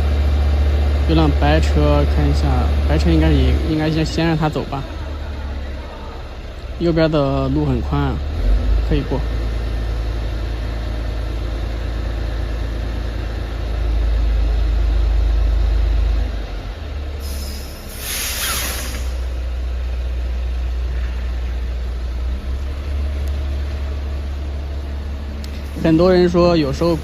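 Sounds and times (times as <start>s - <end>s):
diesel truck engine rumble: 0.0s - 27.0s
air brake hiss: 17.2s - 19.4s.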